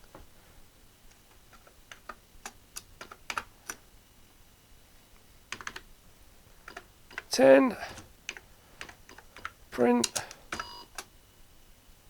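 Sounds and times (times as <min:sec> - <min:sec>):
keyboard keystrokes clicking: 0:01.6 - 0:03.8, 0:05.5 - 0:05.8.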